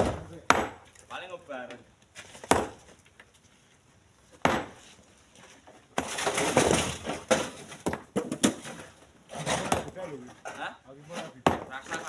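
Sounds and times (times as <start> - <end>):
stone knocking on truck bed: 0.0 - 0.8, 2.4 - 2.8, 4.4 - 4.8, 11.4 - 11.7
rocks clattering: 5.9 - 12.0.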